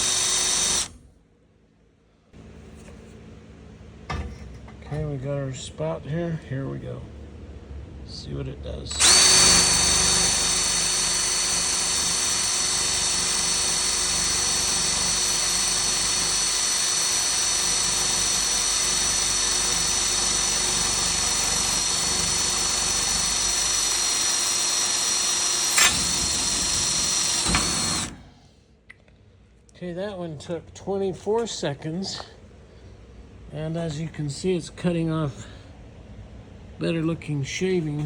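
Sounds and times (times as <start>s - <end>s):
electric drill drilling steel: 0.0s - 1.0s, 8.9s - 28.2s.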